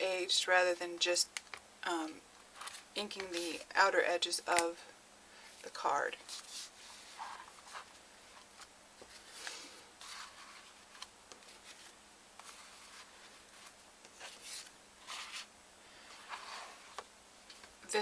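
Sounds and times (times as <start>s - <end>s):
paper rustling and scraping: 2.6s - 2.9s, 6.2s - 17.7s.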